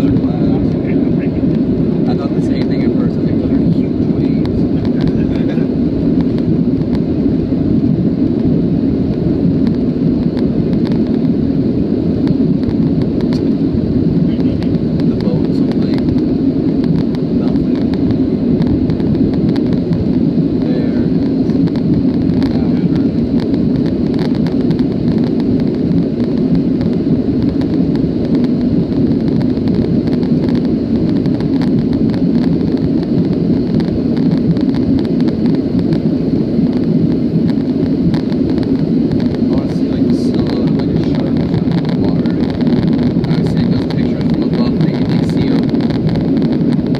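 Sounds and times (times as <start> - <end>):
jet cabin roar: 0.0 - 46.9.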